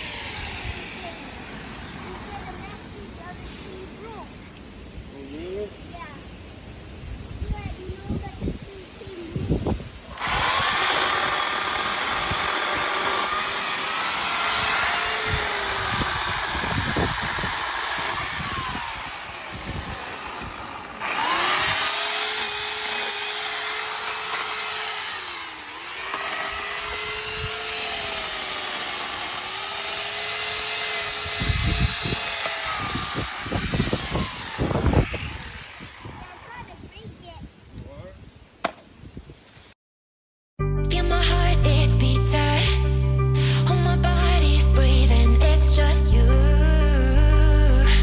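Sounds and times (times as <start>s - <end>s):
chainsaw running: 0.0s - 2.8s, 10.1s - 36.7s.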